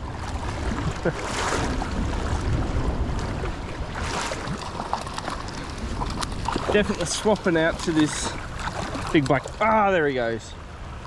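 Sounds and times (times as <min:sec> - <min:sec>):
river water rushing: 0:00.0 - 0:11.0
wind buffeting microphone: 0:00.0 - 0:11.0.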